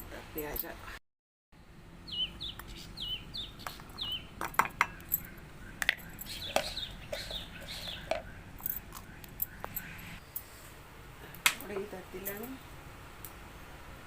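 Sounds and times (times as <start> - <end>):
kitchen utensils clicking: 3.7 - 9.9
chickens peeping: 5.8 - 10.2.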